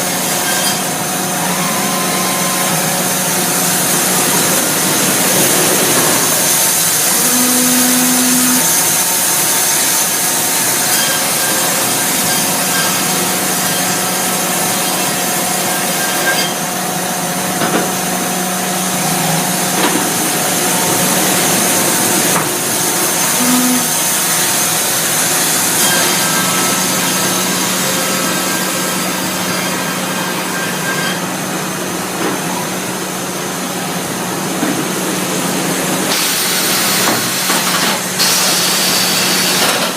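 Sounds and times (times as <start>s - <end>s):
machine hum: 0.0s - 16.0s
band saw cutting wood: 0.0s - 16.8s, 18.9s - 31.3s.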